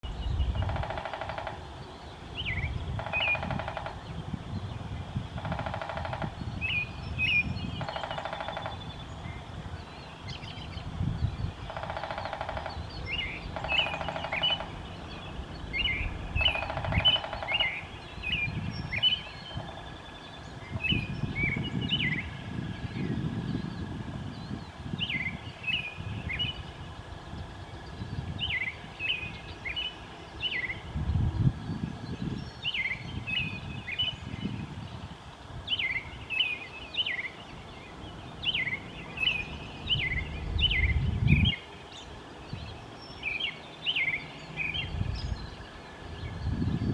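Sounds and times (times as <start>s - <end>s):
birds chirping: 0.0s - 46.9s
woodpecker drumming on wood: 0.6s - 1.9s, 2.9s - 4.2s, 5.3s - 6.5s, 7.7s - 9.0s, 11.6s - 14.9s, 16.3s - 17.9s
low rumbling noise: 1.6s - 36.2s, 37.6s - 43.2s.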